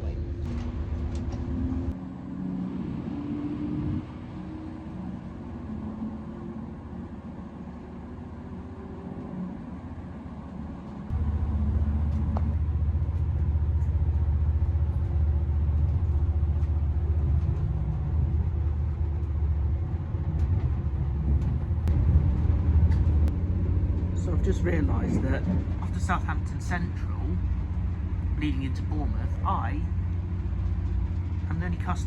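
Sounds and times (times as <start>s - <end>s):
train cabin rumble: 0.0s - 32.0s
diesel engine taking power: 11.1s - 32.0s.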